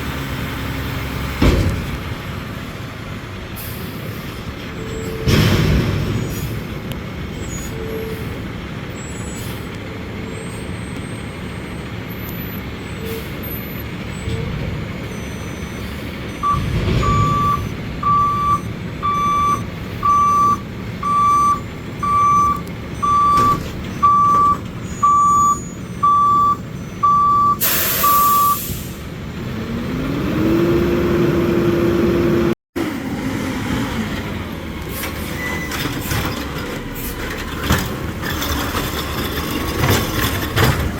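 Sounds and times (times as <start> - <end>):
diesel engine running: 0.0 - 40.9
reversing alarm beeps: 15.2 - 28.6
air brake hiss: 27.6 - 29.0.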